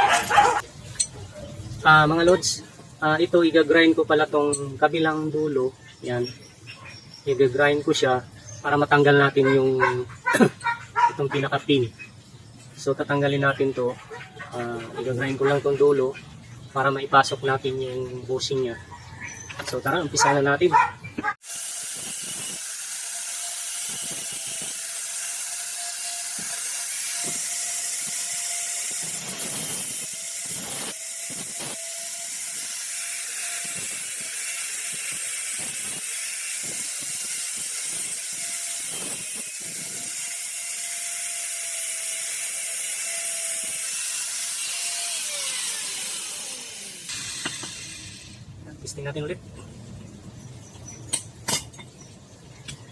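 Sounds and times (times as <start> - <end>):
electric grinder cutting steel: 0.0 - 0.6, 21.4 - 48.5
grinder motor spinning down: 21.4 - 48.5.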